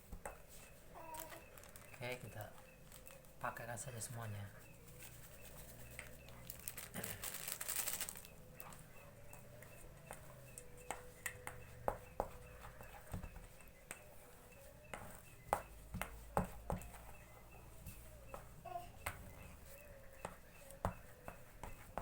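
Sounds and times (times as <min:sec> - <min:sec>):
dough mixing taps and clicks: 0:00.0 - 0:07.1, 0:08.2 - 0:22.0
ingredient pouring rustle: 0:05.3 - 0:08.3.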